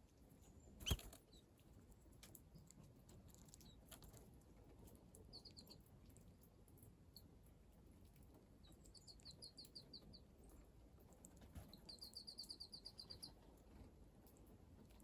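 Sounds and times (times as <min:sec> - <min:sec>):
small bird calling: 0:00.8 - 0:01.4, 0:11.7 - 0:13.4.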